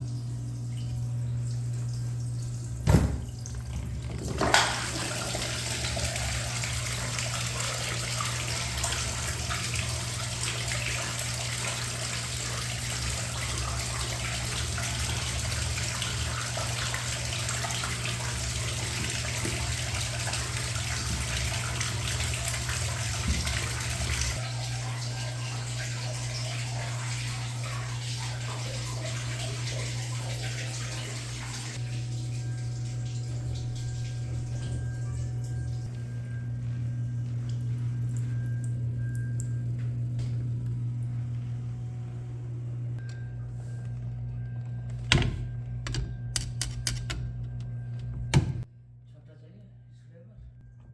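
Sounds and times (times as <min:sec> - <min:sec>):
water splashing in washing machine: 0:00.0 - 0:43.0
low hum: 0:31.8 - 0:50.9.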